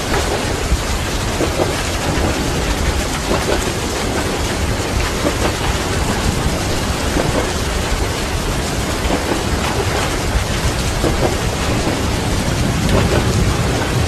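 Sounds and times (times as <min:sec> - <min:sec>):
dense rain: 0:00.0 - 0:14.0
low rumble of thunder: 0:00.0 - 0:14.0
moving train: 0:00.0 - 0:14.0
train wheels knocking on rails: 0:00.0 - 0:14.0.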